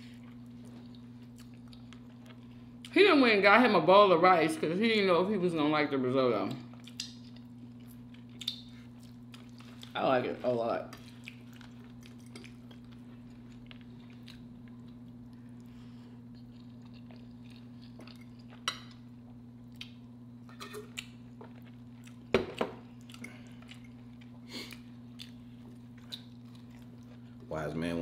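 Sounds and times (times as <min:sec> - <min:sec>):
steady low hum: 0:00.0 - 0:28.0
chewing and eating: 0:00.1 - 0:02.9, 0:06.5 - 0:20.2, 0:20.8 - 0:27.5.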